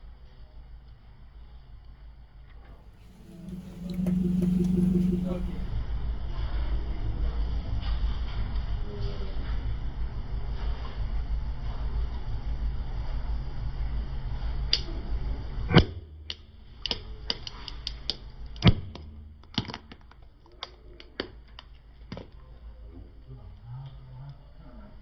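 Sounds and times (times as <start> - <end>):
low engine rumble: 3.0 - 5.8.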